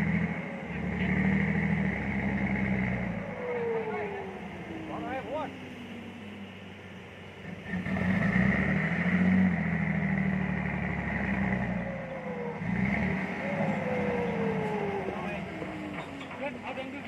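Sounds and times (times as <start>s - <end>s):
heavy diesel engine revving: 0.0s - 17.0s
high whine: 11.6s - 17.0s.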